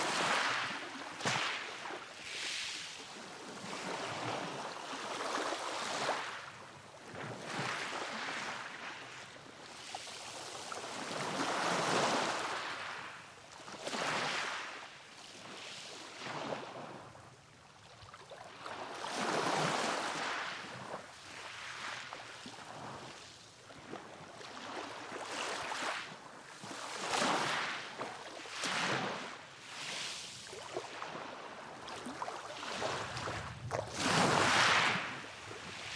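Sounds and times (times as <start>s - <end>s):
sea waves breaking: 30.6s - 35.9s.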